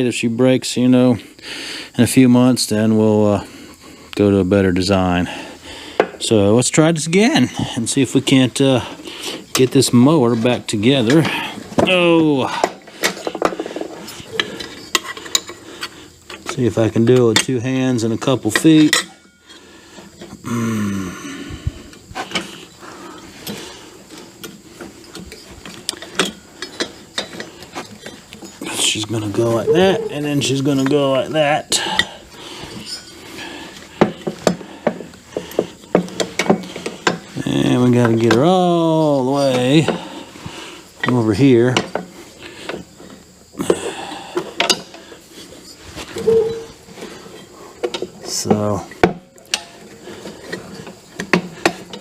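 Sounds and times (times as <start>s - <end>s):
metal clicks clanks and rattles: 9.4s - 20.4s, 23.4s - 31.0s, 33.9s - 38.6s, 41.0s - 42.1s, 44.4s - 45.0s, 47.3s - 52.0s
metal parts clanking: 24.4s - 32.1s
metal creak: 24.4s - 33.2s, 45.6s - 48.4s.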